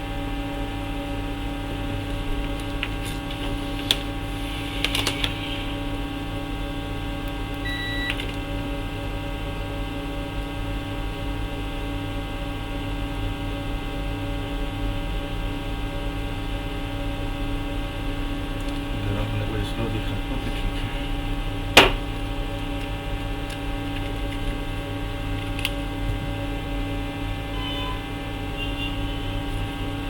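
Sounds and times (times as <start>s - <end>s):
electrical mains hum: 0.0s - 30.0s
short electronic beep: 7.6s - 8.2s.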